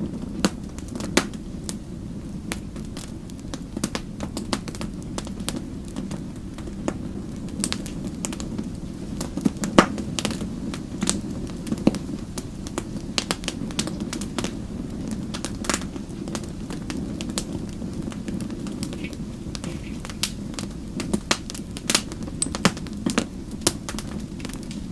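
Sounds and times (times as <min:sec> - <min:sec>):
fire crackling and popping: 0:00.0 - 0:24.9
low rumble of flames: 0:00.0 - 0:24.9.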